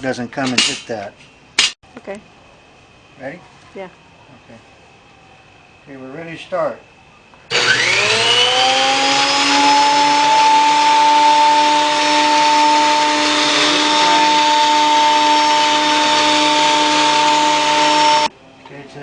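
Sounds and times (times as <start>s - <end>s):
planer motor whining: 7.5s - 18.3s.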